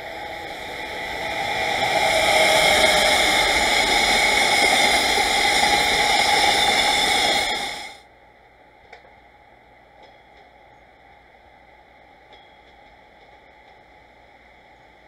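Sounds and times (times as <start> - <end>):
train wheels on rails rushing: 0.0 - 8.0.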